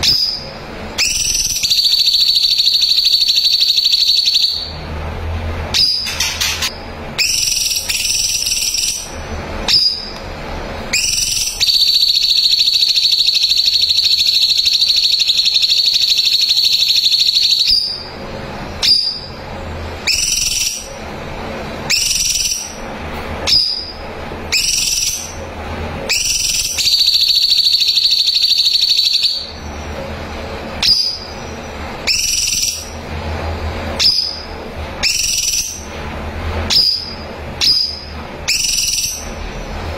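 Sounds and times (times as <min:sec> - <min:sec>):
bird high trill: 0:00.0 - 0:04.7, 0:05.8 - 0:10.2, 0:10.9 - 0:18.1, 0:20.0 - 0:21.0, 0:30.8 - 0:33.0, 0:34.0 - 0:35.9, 0:36.7 - 0:39.4
bird whistling phrases: 0:00.0 - 0:04.7, 0:07.2 - 0:09.1, 0:10.9 - 0:18.1, 0:20.0 - 0:20.9, 0:24.5 - 0:25.4, 0:32.0 - 0:32.9, 0:35.0 - 0:35.9, 0:36.7 - 0:39.3.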